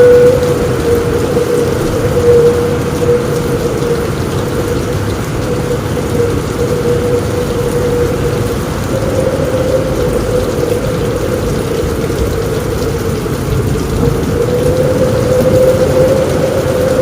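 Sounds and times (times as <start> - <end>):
wavering mid-pitched tone: 0.0 - 3.8
deep continuous rumble: 0.0 - 17.0
heavy rain on a roof: 0.0 - 17.0.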